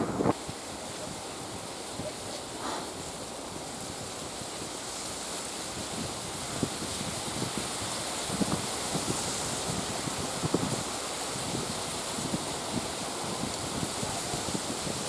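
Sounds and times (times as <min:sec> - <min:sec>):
wind blowing over microphone: 0:00.0 - 0:04.8.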